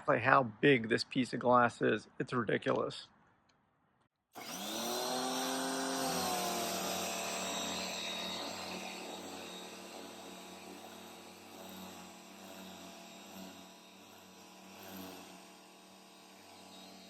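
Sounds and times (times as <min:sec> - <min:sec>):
pressure washer motor hum: 0:04.4 - 0:17.0.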